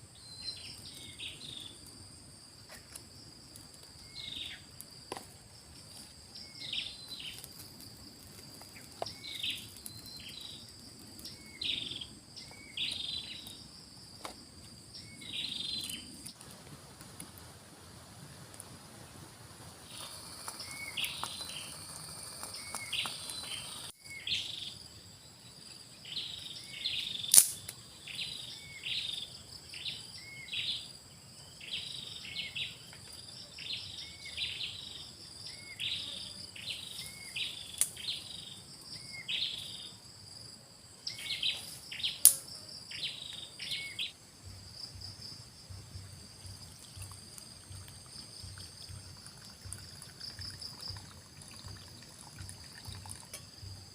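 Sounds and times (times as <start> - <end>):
high-pitched insect drone: 19.9 - 24.8.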